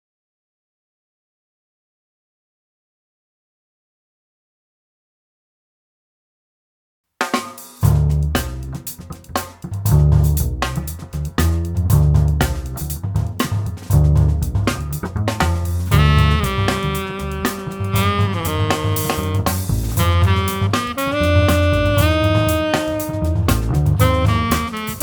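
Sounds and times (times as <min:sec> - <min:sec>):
drum kit groove: 0:07.2 - 0:25.0
low bass notes: 0:07.8 - 0:25.0
saxophone held notes: 0:15.9 - 0:25.0.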